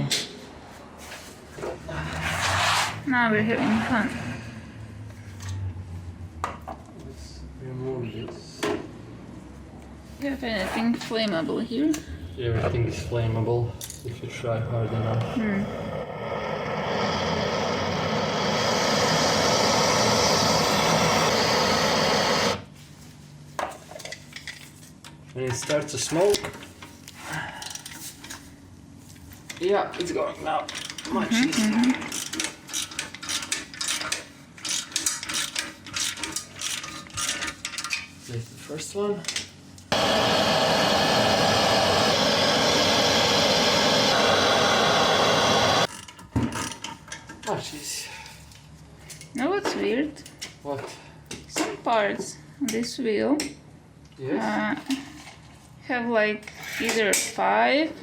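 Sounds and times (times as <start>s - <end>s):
heat gun blowing air: 15.6s - 22.7s, 39.9s - 45.9s
impact wrench running: 15.6s - 22.7s, 39.9s - 45.9s.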